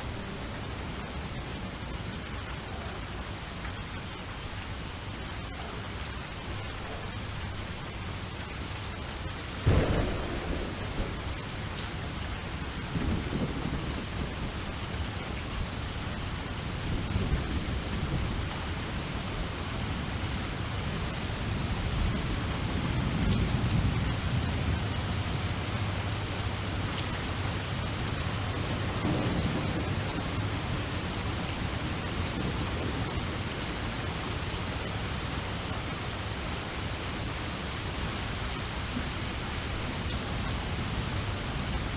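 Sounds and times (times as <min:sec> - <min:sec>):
steady rain: 0:00.0 - 0:41.9
sharp thunderclap: 0:09.6 - 0:14.6, 0:28.6 - 0:33.1
low rolls of thunder: 0:09.6 - 0:36.0.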